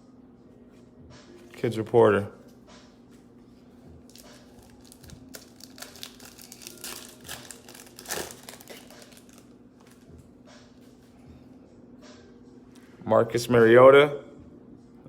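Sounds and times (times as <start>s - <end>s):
plastic wrapper crinkling: 4.0s - 10.1s.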